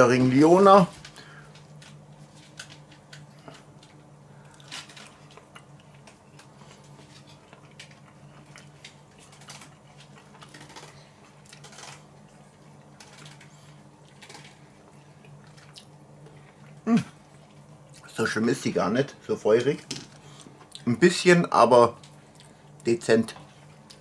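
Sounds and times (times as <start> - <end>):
faint low hum: 0.0 - 24.0
person chewing: 1.6 - 18.1, 22.1 - 22.8.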